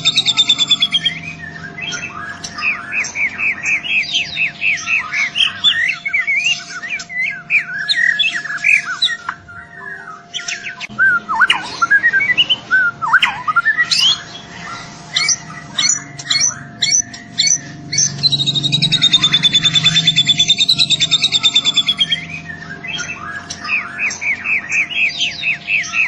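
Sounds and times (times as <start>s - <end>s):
bird singing varied whistles: 0.0s - 14.4s, 15.1s - 26.0s.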